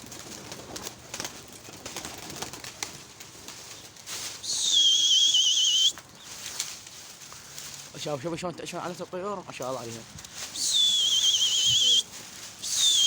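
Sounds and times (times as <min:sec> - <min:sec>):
pigeons fluttering: 0:00.0 - 0:08.3, 0:09.6 - 0:13.0
high warbling whistle: 0:10.6 - 0:12.0.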